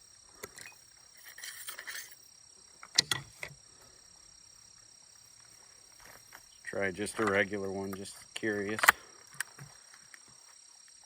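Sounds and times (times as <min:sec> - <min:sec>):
crickets chirping: 0:00.0 - 0:11.0
rustling: 0:00.0 - 0:11.0
shotgun action metallic clicks: 0:08.6 - 0:09.5.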